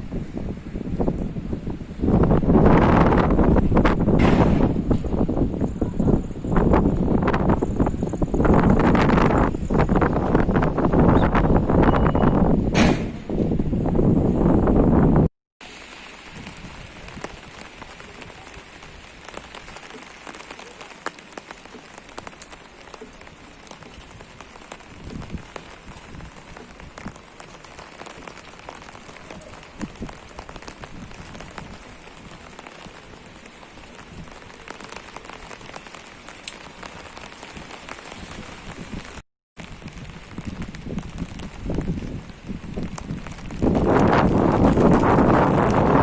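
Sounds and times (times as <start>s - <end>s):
rain drops on hard surfaces: 0.0s - 12.7s, 15.6s - 46.0s
rain hiss: 15.6s - 46.0s.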